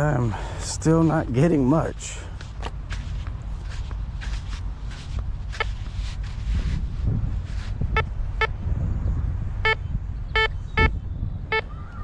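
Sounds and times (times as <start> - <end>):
metal detector beeps: 10.4 - 10.9, 11.5 - 11.7.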